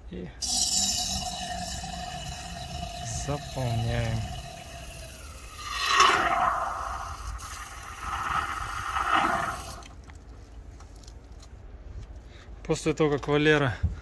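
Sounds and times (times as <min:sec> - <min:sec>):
liquid hissing and gurgling: 0:00.4 - 0:10.0.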